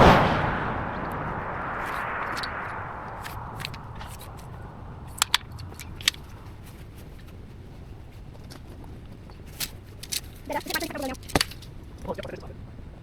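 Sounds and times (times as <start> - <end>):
low steady rumble: 0.0 - 10.5
pruning shears snipping branches: 8.3 - 12.0.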